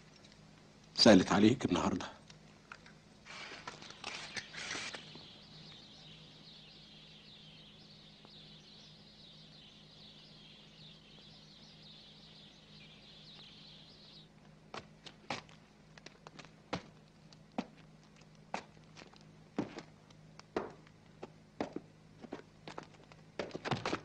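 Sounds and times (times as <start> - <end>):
small birds twittering: 0.0 - 23.7
rustle: 2.4 - 19.7
footsteps tapping: 14.7 - 24.0.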